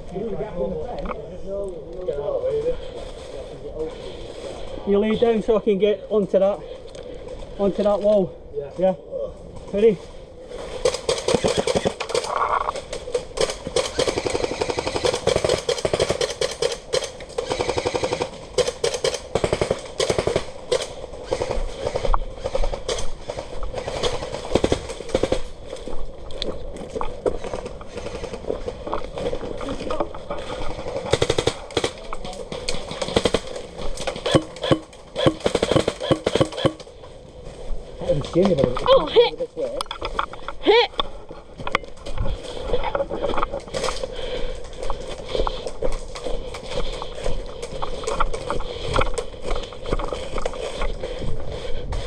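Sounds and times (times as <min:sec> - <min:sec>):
airsoft guns rapid firing: 0:10.8 - 0:25.6, 0:27.9 - 0:28.4, 0:30.7 - 0:36.9.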